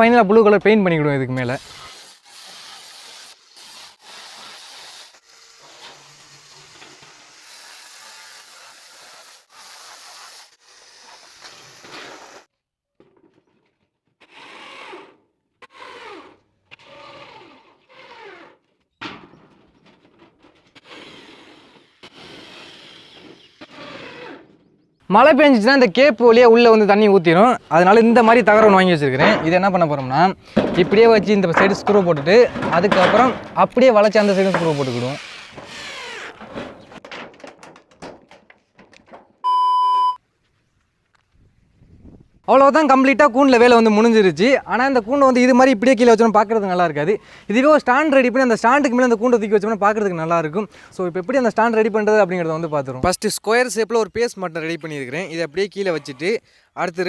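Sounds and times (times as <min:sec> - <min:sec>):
power drill driving screws: 0:01.7 - 0:12.5, 0:14.2 - 0:18.6, 0:20.8 - 0:24.6, 0:34.1 - 0:37.0
knocks on tin roof: 0:29.1 - 0:33.8, 0:35.6 - 0:39.4
electronic beep: 0:39.5 - 0:40.2.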